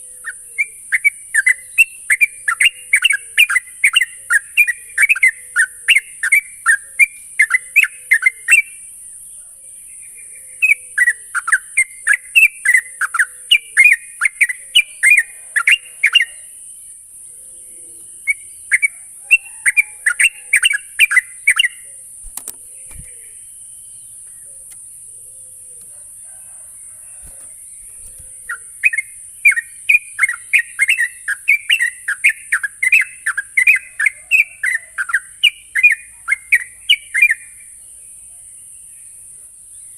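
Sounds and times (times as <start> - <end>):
bird singing bubbly chirps: 0.0 - 8.8, 10.0 - 25.8, 27.7 - 37.7.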